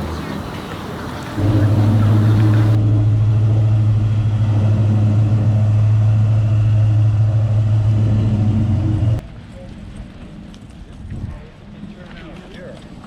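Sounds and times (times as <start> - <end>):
engine idling: 0.0 - 9.2.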